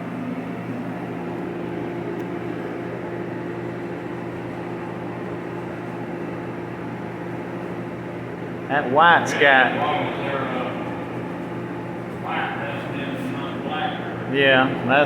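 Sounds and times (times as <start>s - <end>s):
machine humming with airy hiss: 0.0s - 15.0s.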